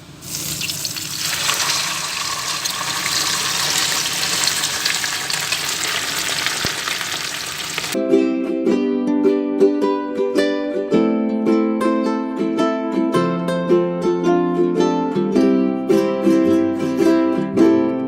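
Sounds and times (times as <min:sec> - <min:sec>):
food sizzling in hot oil: 0:00.0 - 0:08.0
ukulele music: 0:08.0 - 0:18.0.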